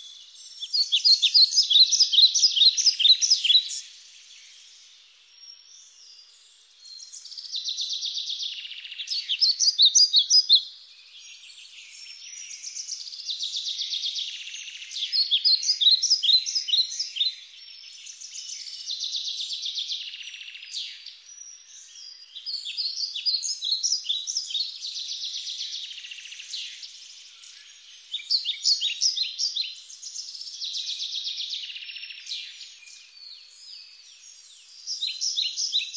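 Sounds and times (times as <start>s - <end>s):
birdsong buzzy trill and chirps: 0.0s - 10.6s.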